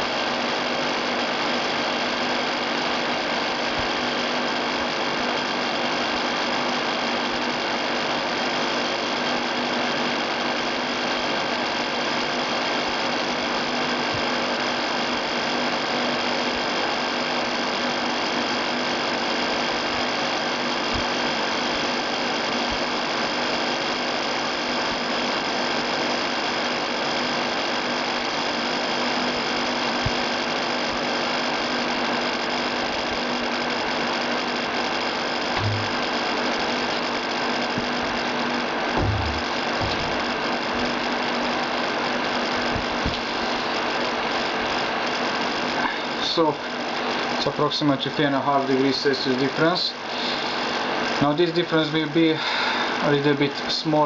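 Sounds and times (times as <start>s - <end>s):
fan running with air rush: 0.0s - 54.0s
faint low knocks: 35.6s - 36.1s, 39.0s - 40.3s.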